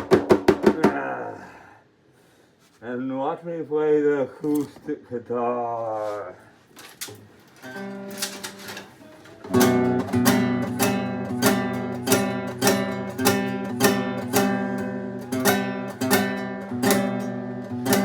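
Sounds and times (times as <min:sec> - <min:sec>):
acoustic guitar strumming: 0:07.6 - 0:18.0.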